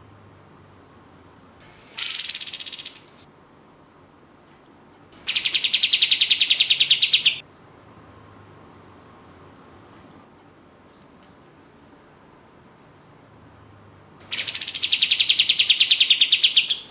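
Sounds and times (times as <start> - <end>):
songbird rattling trills: 1.7 - 3.2, 5.2 - 7.4, 14.3 - 16.9.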